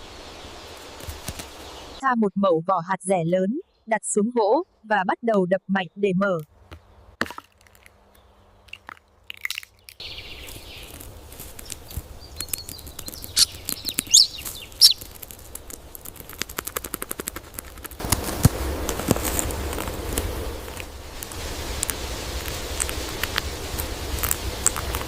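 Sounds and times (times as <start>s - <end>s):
small birds chirping: 0.0s - 7.2s, 8.0s - 18.1s
steady outdoor hiss: 0.0s - 25.0s
light taps and crunches on wood: 6.4s - 22.0s.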